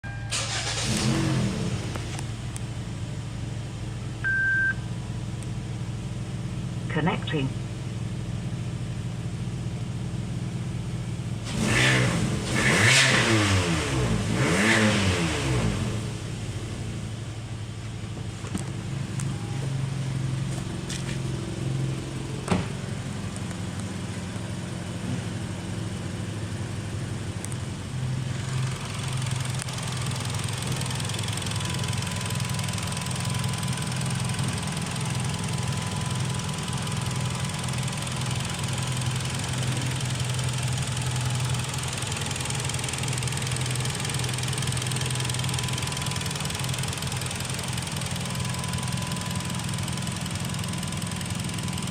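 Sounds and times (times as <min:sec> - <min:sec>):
car engine revving and idling: 0:00.1 - 0:51.9.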